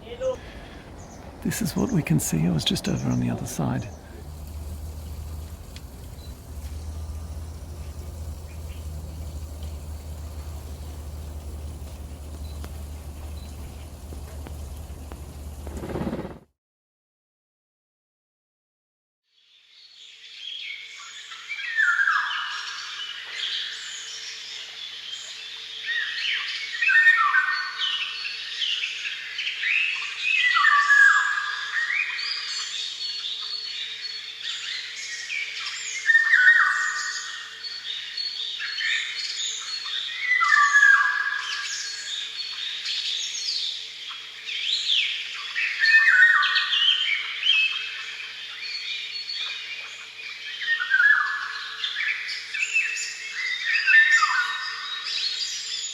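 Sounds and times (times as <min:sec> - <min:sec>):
songbirds chirping and trilling: 0:00.0 - 0:16.3.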